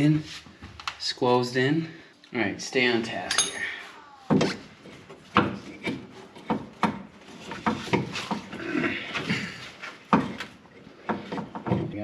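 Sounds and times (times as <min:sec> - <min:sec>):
tools knocking on metal: 0:03.3 - 0:03.6.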